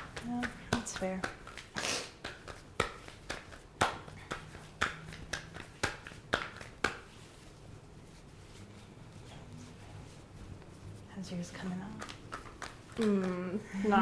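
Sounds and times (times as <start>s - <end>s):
dough slapped between palms: 0.0s - 7.4s, 11.9s - 13.4s.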